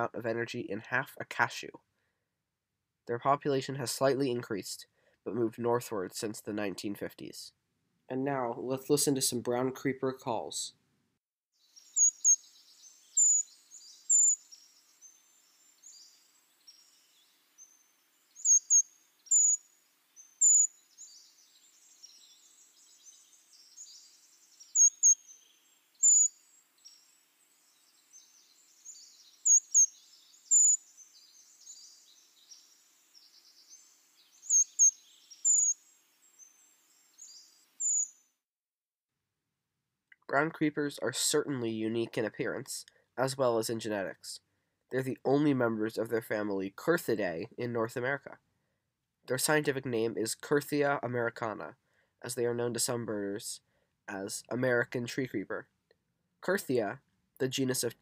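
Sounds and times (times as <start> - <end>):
faint high twittering: 11.6 - 38.2
thin very high bird calls: 11.8 - 38.2.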